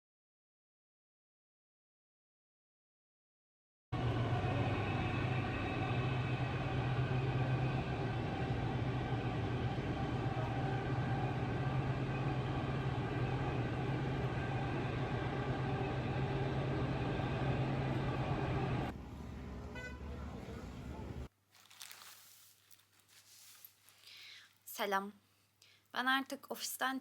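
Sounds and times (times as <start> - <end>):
vehicle rumble: 4.0 - 21.3.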